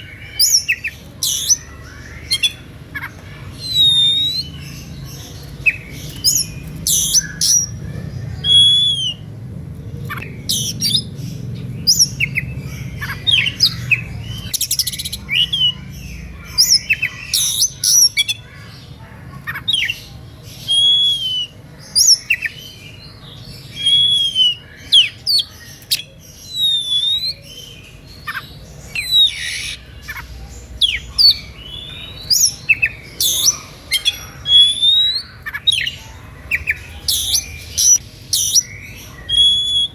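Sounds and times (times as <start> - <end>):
bird singing whistled notes: 3.6 - 4.8, 5.7 - 7.8, 8.4 - 9.3, 10.2 - 18.4, 20.6 - 22.5, 23.7 - 29.8, 30.8 - 35.9, 37.1 - 39.9.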